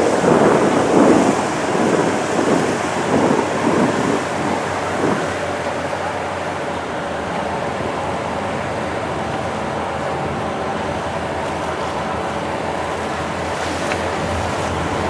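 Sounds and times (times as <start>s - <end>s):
boat engine running: 0.0s - 15.0s
water noise: 0.0s - 15.0s
wind: 0.0s - 15.0s.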